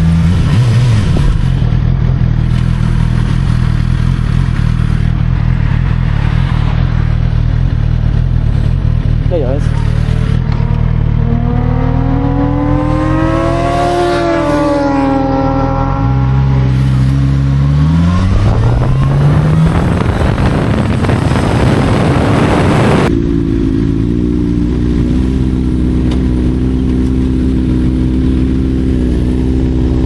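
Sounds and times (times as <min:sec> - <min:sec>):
motorcycle engine revving: 0:00.0 - 0:30.0
wind rush at speed: 0:10.4 - 0:23.2.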